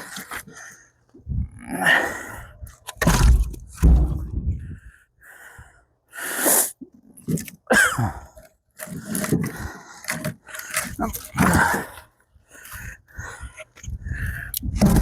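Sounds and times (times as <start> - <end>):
heavy thuds: 3.0 - 4.6.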